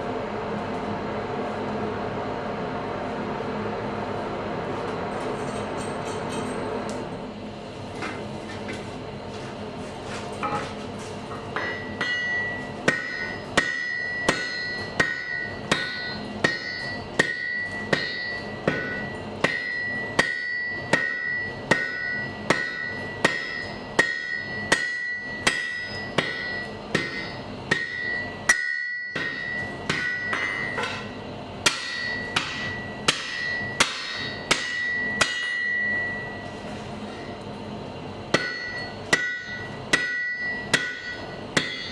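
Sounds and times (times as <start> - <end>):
hammer striking anvil: 11.3 - 36.4, 38.3 - 41.9.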